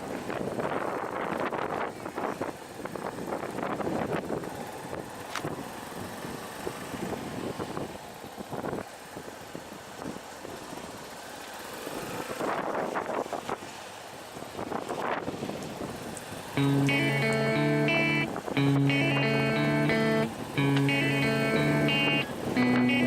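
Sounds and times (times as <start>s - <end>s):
vehicle running: 16.6s - 23.0s.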